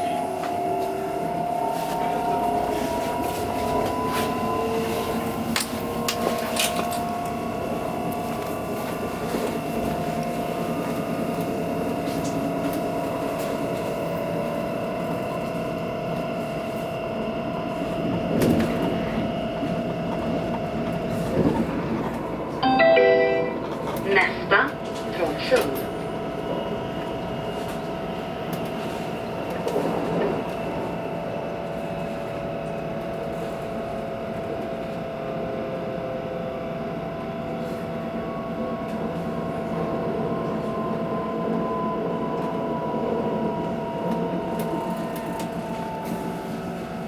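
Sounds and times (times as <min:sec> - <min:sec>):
train rumbling: 0:00.0 - 0:47.0.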